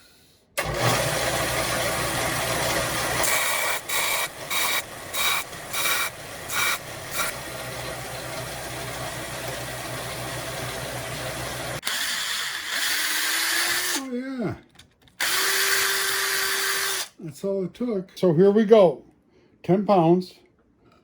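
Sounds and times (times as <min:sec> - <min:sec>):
power grinder running: 0:00.6 - 0:14.0, 0:15.2 - 0:17.1.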